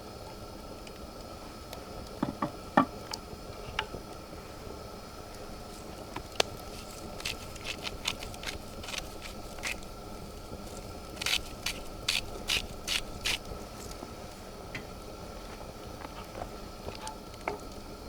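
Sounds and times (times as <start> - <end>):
sharp scraping strokes: 6.5 - 14.0.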